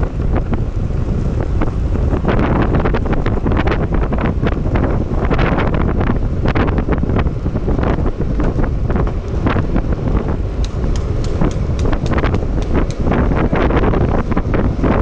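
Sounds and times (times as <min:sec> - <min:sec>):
wheels rumbling on asphalt: 0:00.0 - 0:15.0
wind buffeting microphone: 0:00.0 - 0:15.0
sharp ticks: 0:10.6 - 0:13.2.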